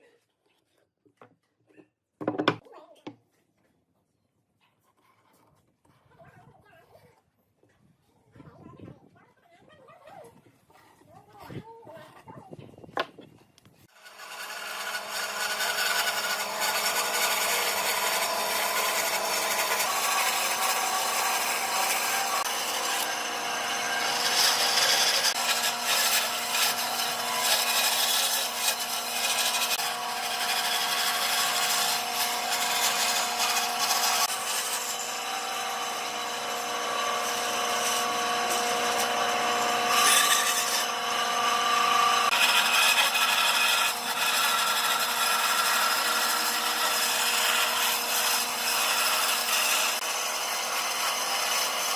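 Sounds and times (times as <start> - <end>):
power tool running against wood: 13.9 - 51.9.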